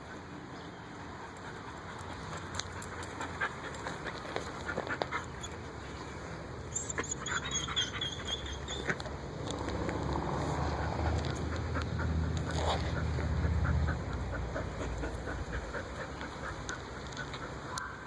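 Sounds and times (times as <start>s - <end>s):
dog whining: 6.7s - 9.0s.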